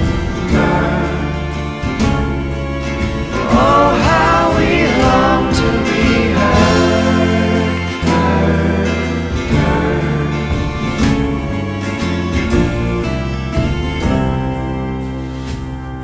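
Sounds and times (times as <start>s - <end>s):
pop song with bass and guitar: 0.0s - 16.0s.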